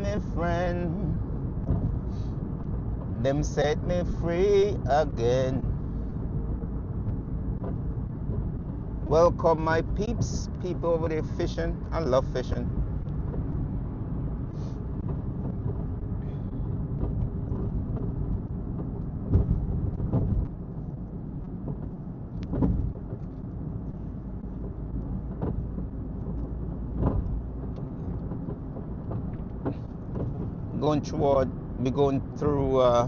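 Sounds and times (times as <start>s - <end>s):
car engine and tyres rumbling: 0.0s - 33.0s
short thumps: 1.2s - 3.2s, 12.7s - 30.8s.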